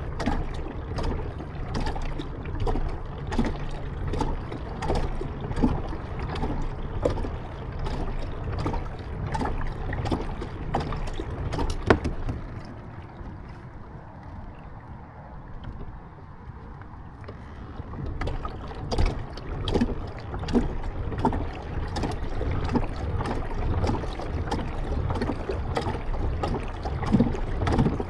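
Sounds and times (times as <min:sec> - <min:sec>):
kayak paddle splashing: 0:00.0 - 0:28.0
wind rumble on microphone: 0:00.0 - 0:28.0.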